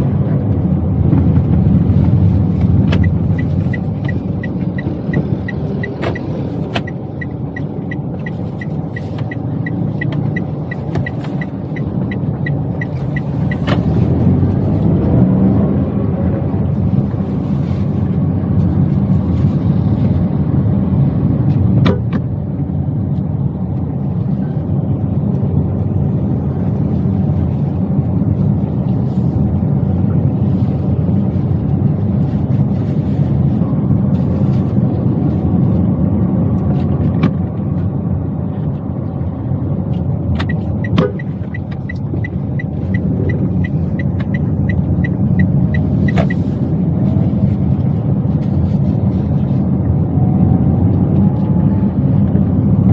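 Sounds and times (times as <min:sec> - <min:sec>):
turn signal ticking: 0:00.0 - 0:19.2, 0:33.3 - 0:52.9
car engine and road noise: 0:00.0 - 0:52.9.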